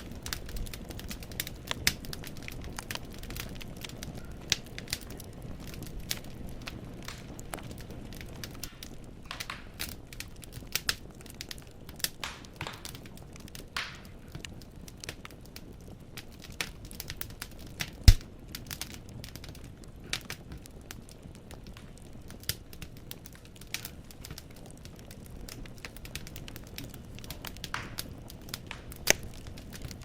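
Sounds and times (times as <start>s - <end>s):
low steady rumble: 0.0s - 13.1s
wood fire crackling: 0.0s - 30.0s.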